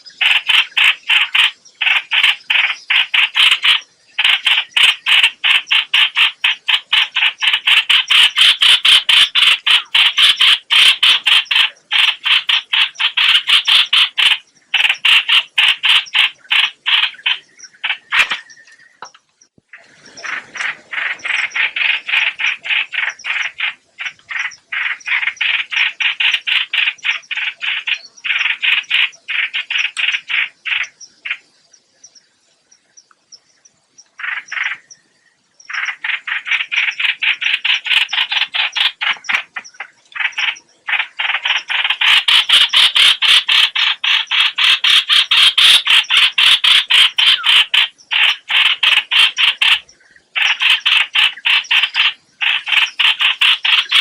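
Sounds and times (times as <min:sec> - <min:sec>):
bird call repeated notes: 0:00.0 - 0:19.3, 0:35.6 - 0:54.0.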